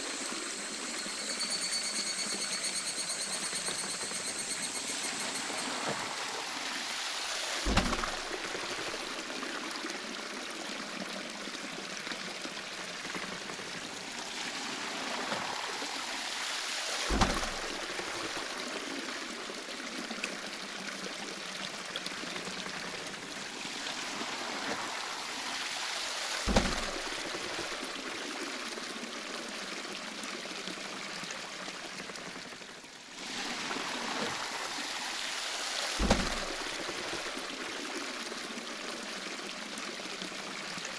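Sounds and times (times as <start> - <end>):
water pouring and running: 0.0 - 40.9
waterwheel splash thumps: 2.2 - 9.3, 16.8 - 18.6, 22.9 - 28.0, 33.3 - 37.6.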